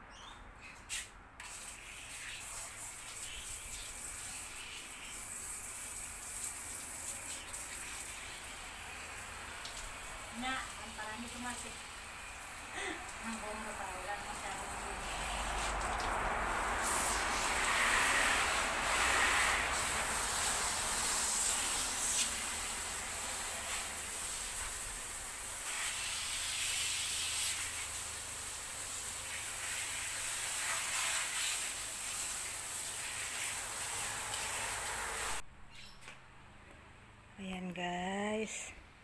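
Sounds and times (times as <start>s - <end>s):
car wash sprayer hissing: 1.4s - 35.4s.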